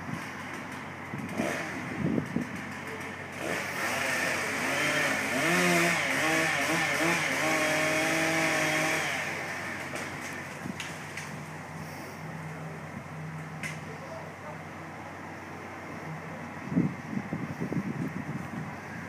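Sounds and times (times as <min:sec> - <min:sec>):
chainsaw revving: 0:00.6 - 0:10.7.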